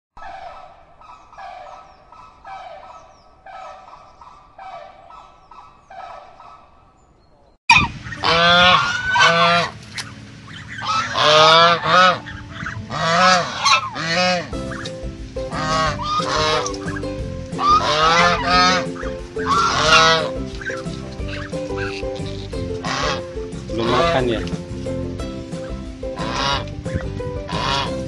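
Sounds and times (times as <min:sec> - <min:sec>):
flamingo calls: 0:00.2 - 0:06.8, 0:07.7 - 0:28.0
honking calls of swans or geese: 0:00.2 - 0:06.8, 0:07.7 - 0:28.0.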